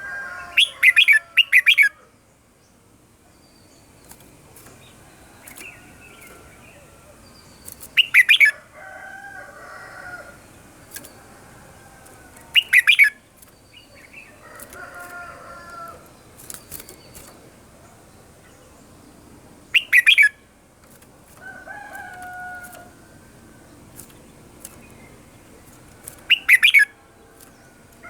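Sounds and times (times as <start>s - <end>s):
bird singing whistled notes: 7.4s - 8.6s, 12.5s - 13.2s, 19.7s - 20.4s, 26.3s - 26.9s.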